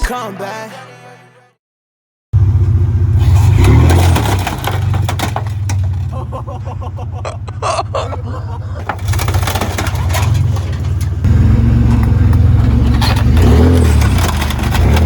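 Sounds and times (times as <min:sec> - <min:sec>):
off-road vehicle engine running: 0:02.4 - 0:15.0
sharp knocks and rattles: 0:03.7 - 0:15.0.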